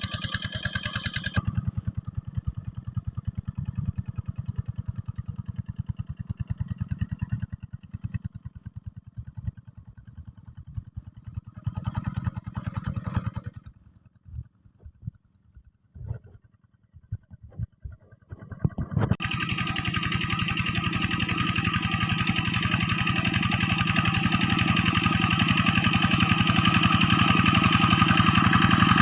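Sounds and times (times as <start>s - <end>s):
diesel tractor engine chugging: 0.0s - 29.0s.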